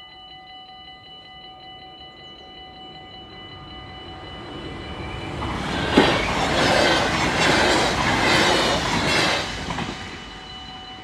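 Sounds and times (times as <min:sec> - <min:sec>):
crossing warning bell ringing: 0:00.0 - 0:11.0
train wheels rushing on rail: 0:03.1 - 0:11.0
sharp train knock: 0:05.7 - 0:10.2.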